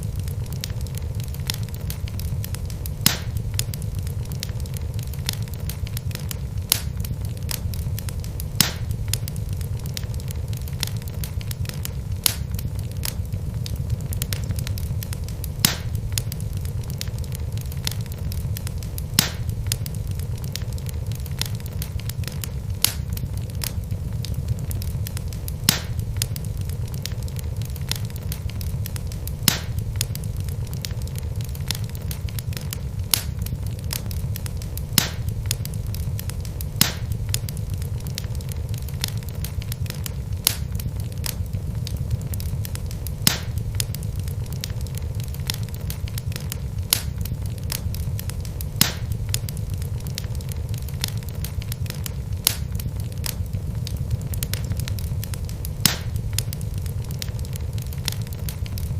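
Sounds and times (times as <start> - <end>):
fire crackling and popping: 0.0 - 58.9
low rumble of flame: 0.0 - 58.9.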